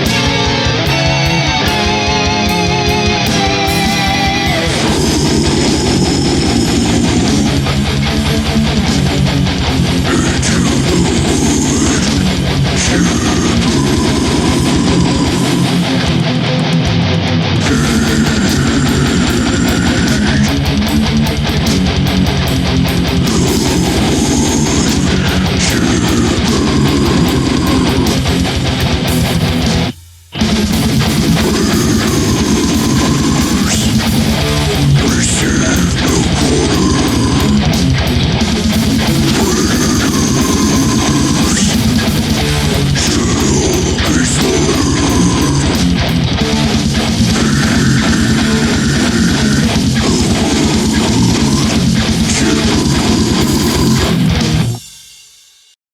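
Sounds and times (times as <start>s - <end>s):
fast dense drumming: 0.0s - 55.0s
distorted electric guitars: 0.0s - 55.3s.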